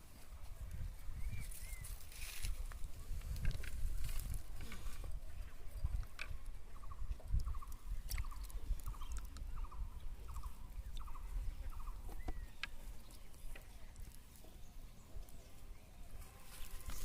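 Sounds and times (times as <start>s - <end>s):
small animal chirping trills: 6.8s - 12.6s.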